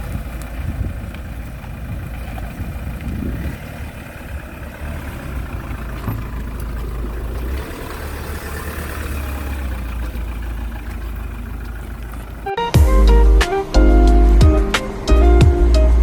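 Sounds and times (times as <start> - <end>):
low rumble: 0.0 - 16.0
music: 12.5 - 16.0.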